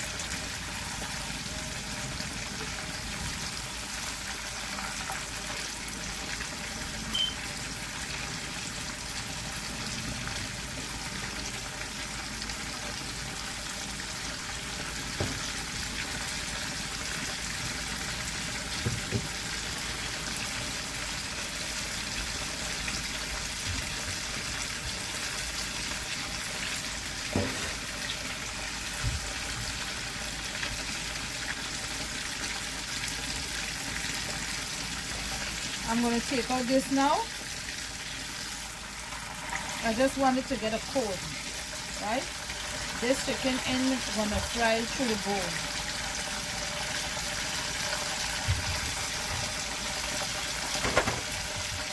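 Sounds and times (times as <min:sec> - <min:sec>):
chicken frying in hot oil: 0:00.0 - 0:51.9
clicks and knocks: 0:50.8 - 0:51.8.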